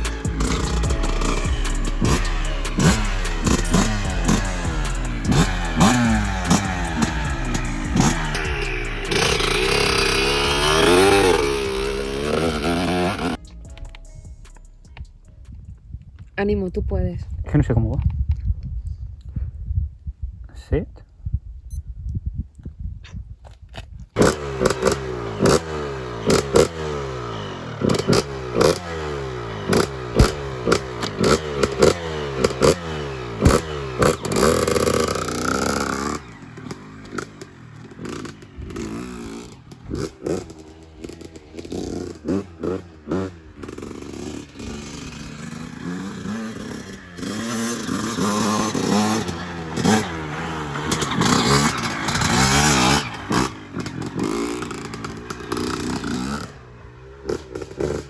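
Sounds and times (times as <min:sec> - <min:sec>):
dirt bike engine revving: 0:00.0 - 0:15.2, 0:24.2 - 0:58.0
knocks and rattles from bike: 0:27.8 - 0:58.0.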